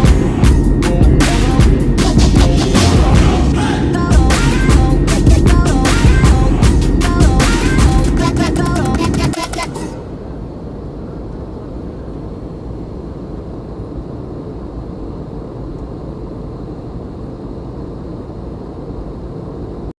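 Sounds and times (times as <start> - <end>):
background music: 0.0 - 10.0
aeroplane rushing noise: 0.0 - 16.9
faint high whine: 0.0 - 19.9.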